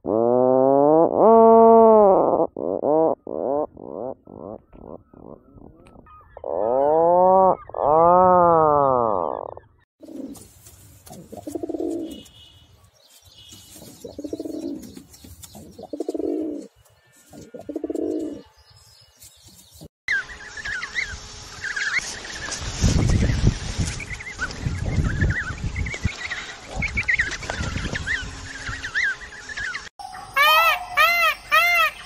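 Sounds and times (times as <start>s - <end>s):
long rising and falling animal calls: 1.0s - 9.8s
high bird chirps: 11.6s - 16.3s.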